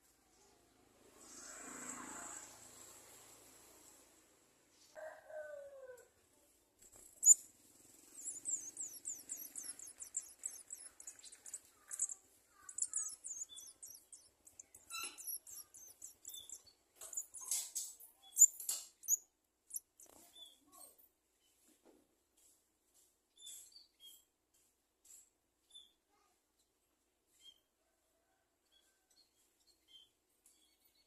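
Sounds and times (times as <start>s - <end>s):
nestlings begging chirps: 7.0s - 20.2s
sharp ticks: 7.0s - 20.2s.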